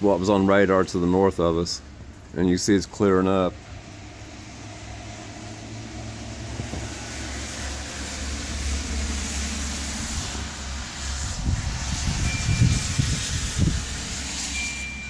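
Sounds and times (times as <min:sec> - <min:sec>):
wind blowing across microphone: 0:06.2 - 0:08.0, 0:08.6 - 0:15.0.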